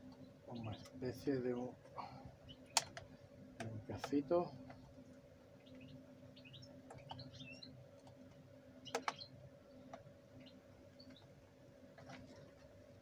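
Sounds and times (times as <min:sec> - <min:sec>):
steady low hum: 0:00.0 - 0:13.0
faint bird chirps: 0:05.5 - 0:07.8, 0:08.8 - 0:11.3.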